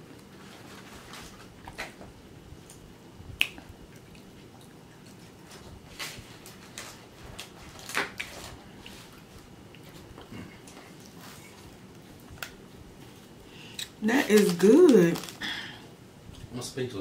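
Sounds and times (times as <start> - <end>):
wet clicks and lip smacks: 3.4 - 5.1.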